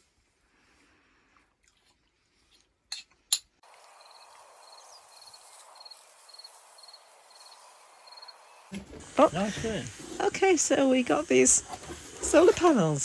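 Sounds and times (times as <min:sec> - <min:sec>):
steady outdoor hiss: 0:03.6 - 0:13.0.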